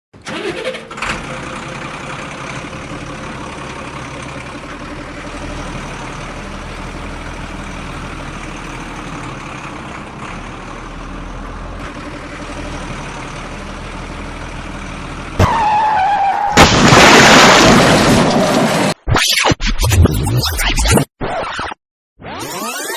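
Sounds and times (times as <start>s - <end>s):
truck engine running: 0.2s - 15.8s
loud crash-like burst: 16.5s - 19.0s.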